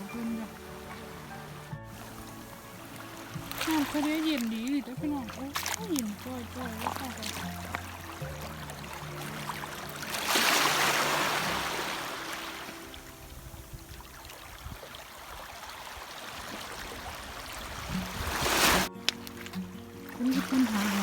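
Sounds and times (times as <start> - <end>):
sea surf washing in: 0.0 - 21.0.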